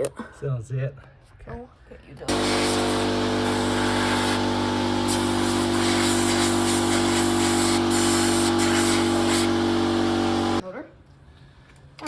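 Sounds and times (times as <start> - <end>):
motor humming with hiss: 2.3 - 10.6.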